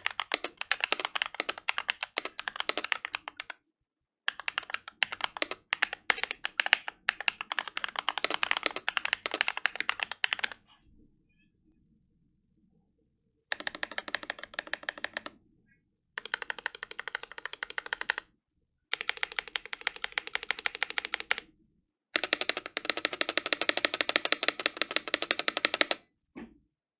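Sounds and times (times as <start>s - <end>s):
fast typing on mechanical keyboard: 0.0s - 3.6s, 4.3s - 10.6s, 13.5s - 15.4s, 16.2s - 18.3s, 18.9s - 21.5s, 22.2s - 26.0s.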